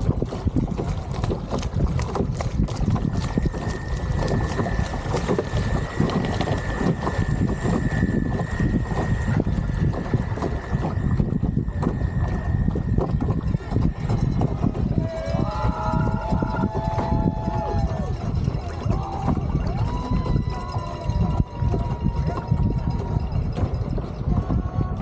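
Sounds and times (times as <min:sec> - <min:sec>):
wind buffeting microphone: 0:00.0 - 0:25.0
thin high whine: 0:03.6 - 0:22.0.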